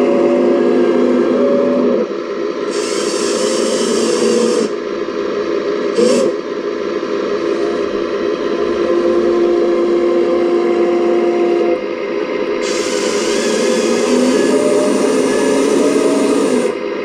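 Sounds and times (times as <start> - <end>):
small electric motors whining: 2.7 - 4.8, 5.9 - 6.4, 12.6 - 16.8.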